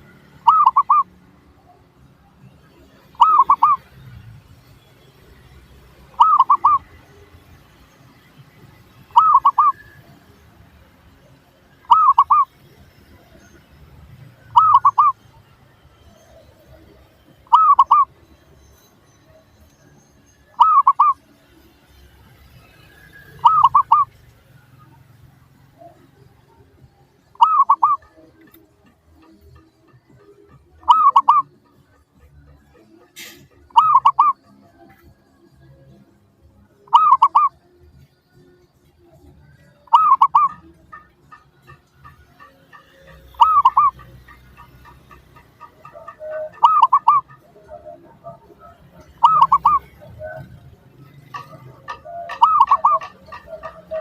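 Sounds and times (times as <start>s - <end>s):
dove cooing: 0.0s - 4.2s, 5.4s - 8.2s, 8.8s - 10.5s, 11.2s - 13.6s, 14.3s - 18.3s, 20.4s - 21.4s, 22.3s - 34.9s, 35.7s - 37.8s, 39.1s - 54.0s.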